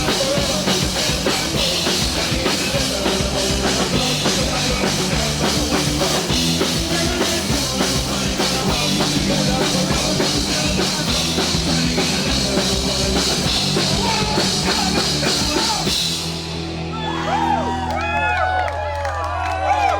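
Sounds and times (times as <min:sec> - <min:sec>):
drum kit: 0:00.0 - 0:18.3
rock band playing: 0:00.0 - 0:18.7.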